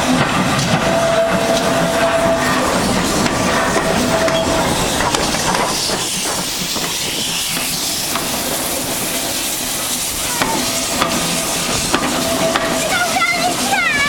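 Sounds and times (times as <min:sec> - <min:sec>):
steam locomotive hissing: 0:00.0 - 0:14.0.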